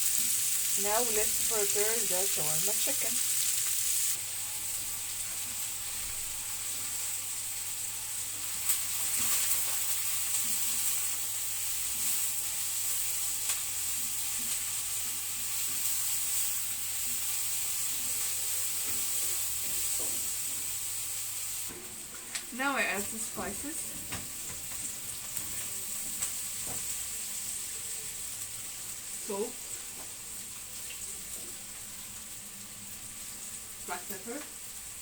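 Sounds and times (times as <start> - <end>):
onions sizzling in oil: 0.0 - 35.0.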